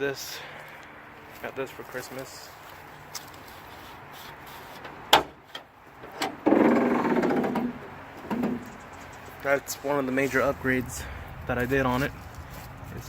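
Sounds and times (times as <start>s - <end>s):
loud rasping creak: 6.2s - 9.3s.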